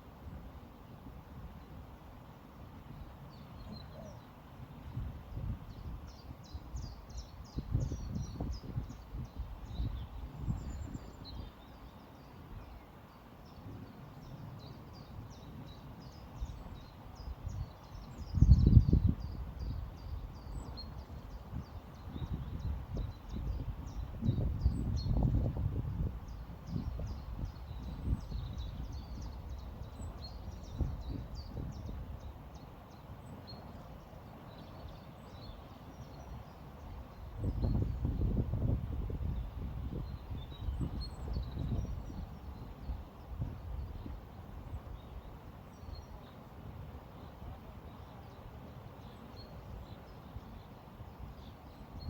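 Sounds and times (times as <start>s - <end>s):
wind buffeting microphone: 4.9s - 11.6s, 15.4s - 32.6s, 36.8s - 46.1s
small birds chirping: 5.7s - 46.5s.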